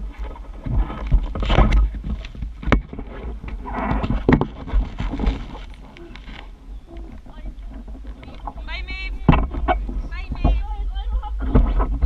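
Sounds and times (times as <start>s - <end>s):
water noise: 0.0s - 12.0s
wind buffeting microphone: 0.0s - 12.0s
boat knocking: 0.3s - 12.0s.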